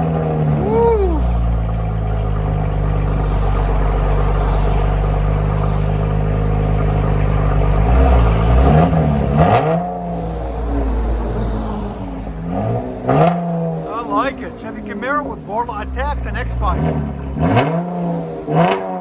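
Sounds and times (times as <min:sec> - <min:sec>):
car engine idling and revving: 0:00.0 - 0:19.0
exhaust crack: 0:00.0 - 0:19.0.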